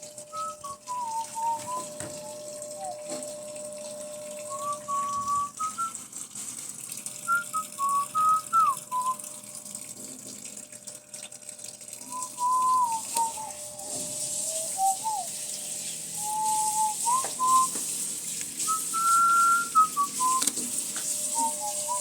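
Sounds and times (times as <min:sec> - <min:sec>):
steady hum: 0:00.0 - 0:06.0
person whistling a tune: 0:00.3 - 0:03.2, 0:04.4 - 0:06.0, 0:07.2 - 0:09.3, 0:12.0 - 0:15.4, 0:16.2 - 0:17.8, 0:18.6 - 0:20.6, 0:21.3 - 0:22.0.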